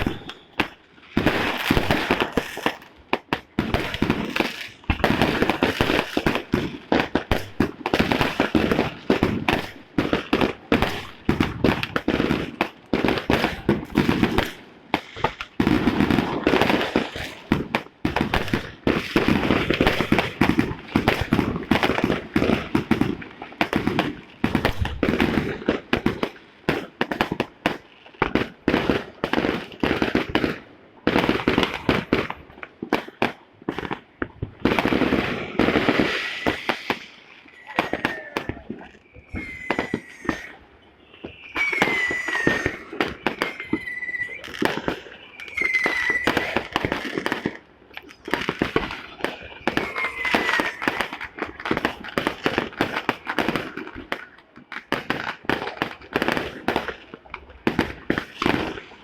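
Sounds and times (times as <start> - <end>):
fireworks bangs and crackles: 0.0 - 59.0
short falling whistles: 39.0 - 46.8.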